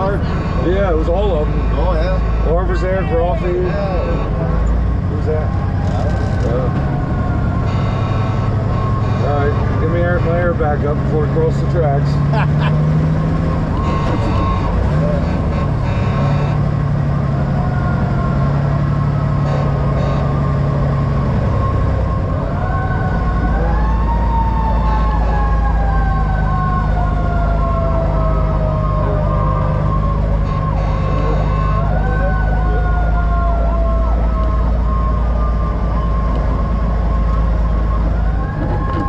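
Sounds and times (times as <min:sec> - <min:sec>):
siren wailing: 0:00.0 - 0:12.0, 0:12.6 - 0:39.0
diesel truck engine rumble: 0:00.0 - 0:39.0
fast pulsing siren tone: 0:17.5 - 0:39.0.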